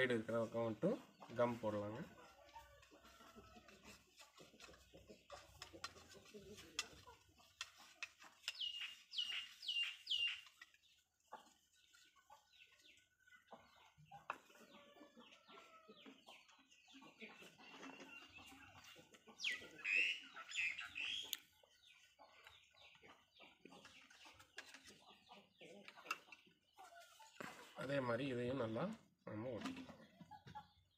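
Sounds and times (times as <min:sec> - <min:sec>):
high bird calls: 0:08.4 - 0:10.6, 0:19.4 - 0:21.4.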